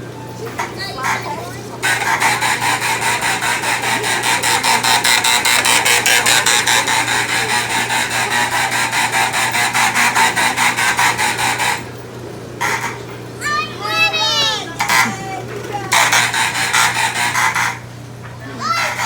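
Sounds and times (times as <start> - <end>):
pulsing alarm buzzer: 1.8 - 11.9.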